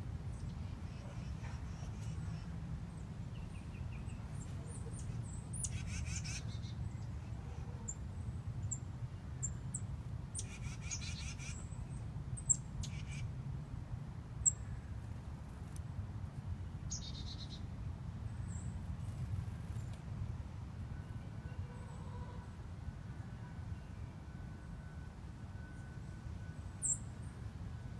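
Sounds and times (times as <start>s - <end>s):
songbirds chip notes: 0.3s - 13.3s, 16.9s - 17.6s, 25.7s - 27.6s.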